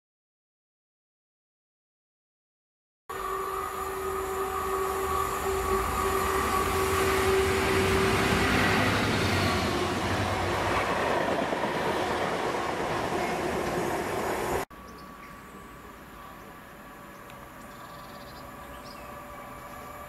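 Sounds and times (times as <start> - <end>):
diesel locomotive engine whine: 3.1 - 20.0
train wheels running over track: 5.0 - 14.6.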